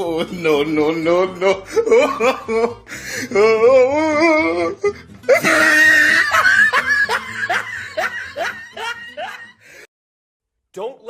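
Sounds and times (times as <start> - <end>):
short falling laughs: 5.3 - 9.4.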